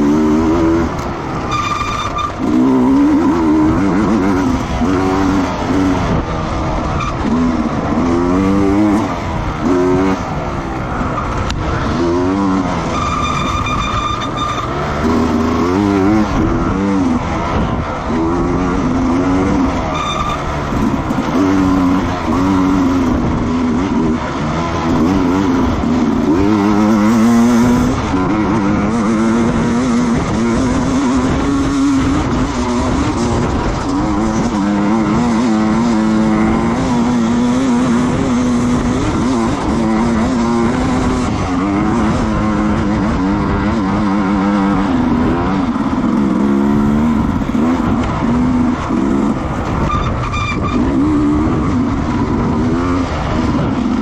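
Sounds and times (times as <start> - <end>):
racing motorcycle engines: 0.0 - 54.0.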